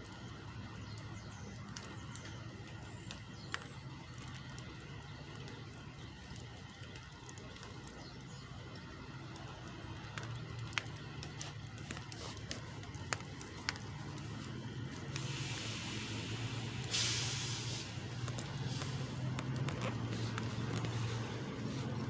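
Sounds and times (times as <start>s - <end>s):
truck engine idling: 8.0s - 22.0s
hissing: 9.4s - 22.0s.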